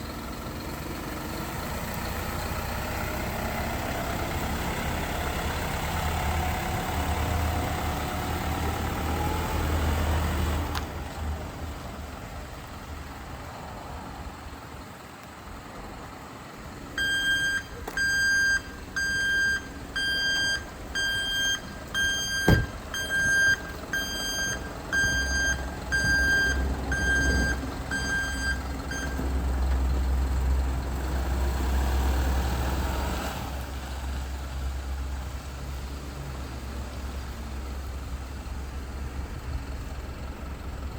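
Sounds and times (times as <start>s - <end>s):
diesel truck engine running: 0.0s - 40.9s
truck warning beeper: 17.0s - 29.3s.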